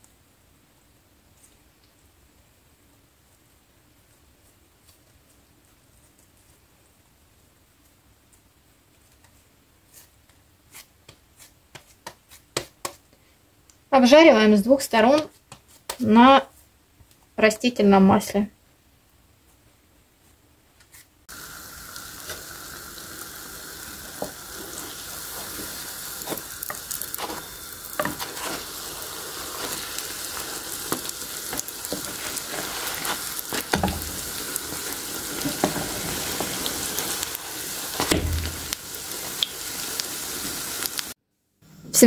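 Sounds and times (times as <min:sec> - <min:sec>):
dough frying in oil: 0:21.2 - 0:41.2.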